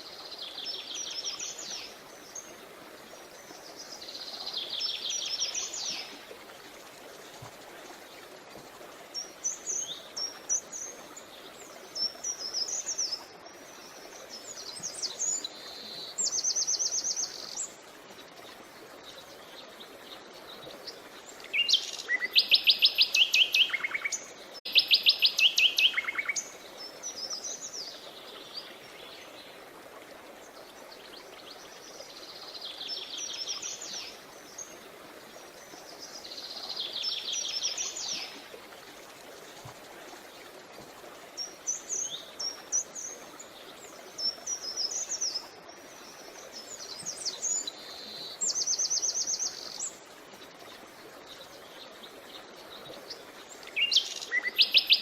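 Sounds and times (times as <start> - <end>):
creek rushing: 0.0 - 55.0
songbirds singing trills: 19.6 - 29.4, 50.7 - 55.0.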